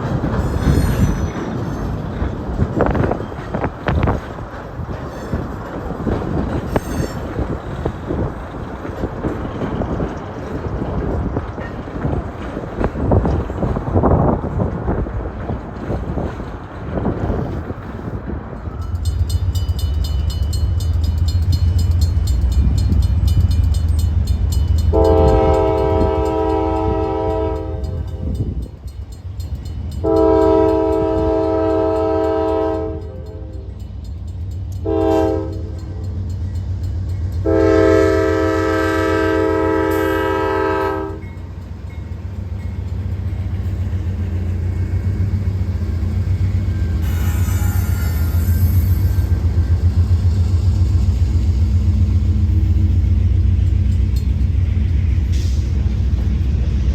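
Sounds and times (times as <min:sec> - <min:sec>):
locomotive engine rumbling: 0:00.0 - 0:56.9
train chime horn blasts: 0:24.8 - 0:28.8, 0:29.9 - 0:33.9, 0:34.8 - 0:36.4, 0:37.3 - 0:41.5, 0:46.8 - 0:49.4.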